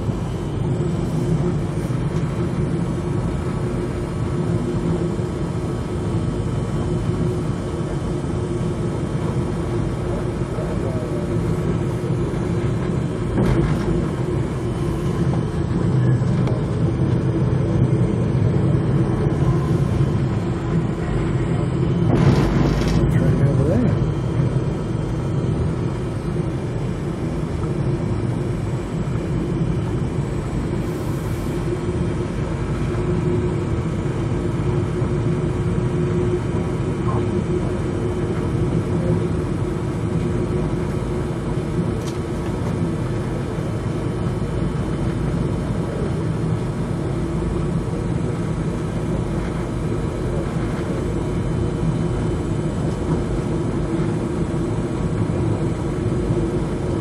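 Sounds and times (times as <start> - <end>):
train rumble from inside: 0.0 - 57.0.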